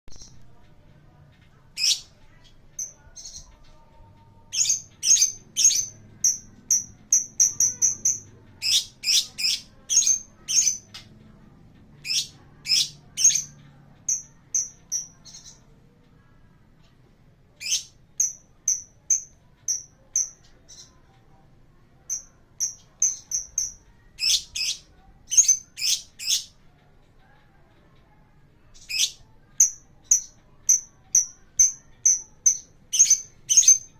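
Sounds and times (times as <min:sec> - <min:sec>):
lovebird chirping: 0:01.8 - 0:11.1, 0:12.0 - 0:15.7, 0:17.6 - 0:21.2, 0:22.0 - 0:26.5, 0:28.6 - 0:33.9.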